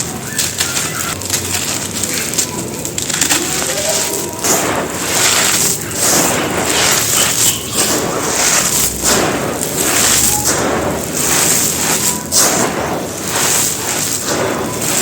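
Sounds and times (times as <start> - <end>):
gritty crunching of crushed cement: 0.0 - 15.0.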